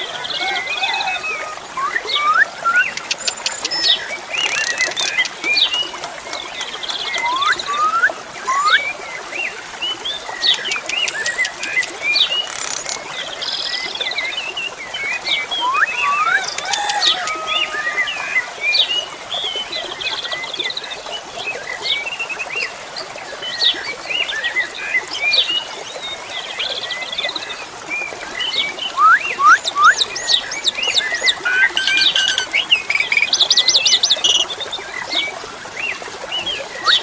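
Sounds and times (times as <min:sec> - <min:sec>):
flowing water: 0:00.0 - 0:37.0
starling singing: 0:30.8 - 0:34.6.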